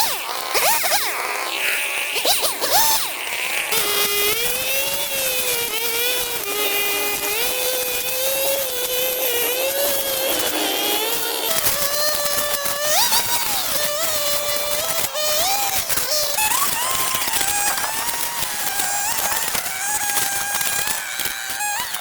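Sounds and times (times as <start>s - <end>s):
small motor buzzing: 0.0s - 22.0s
rising and falling sweeps: 9.6s - 12.4s.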